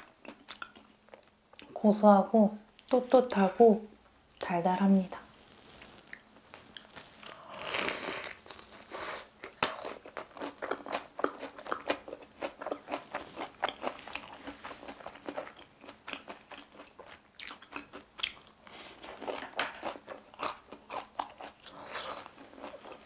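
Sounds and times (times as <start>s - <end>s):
person crunching fried food: 5.4s - 23.0s.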